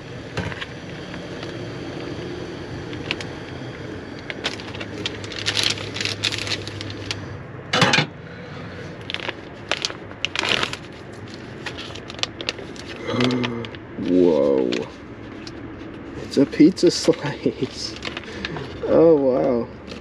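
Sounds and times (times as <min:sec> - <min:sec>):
steady low hum: 0:00.0 - 0:20.0
food pouch crinkling: 0:04.2 - 0:07.2, 0:09.0 - 0:16.0, 0:17.2 - 0:18.8.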